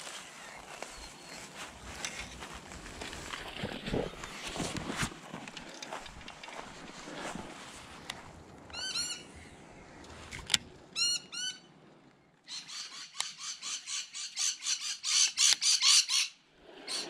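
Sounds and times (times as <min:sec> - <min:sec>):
bird calling: 0:08.7 - 0:09.6, 0:10.9 - 0:11.7, 0:12.4 - 0:17.0.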